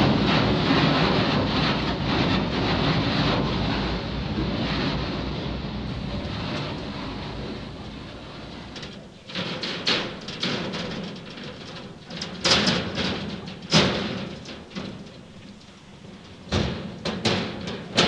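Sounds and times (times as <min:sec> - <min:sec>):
footsteps on metal footbridge: 0:05.9 - 0:18.0.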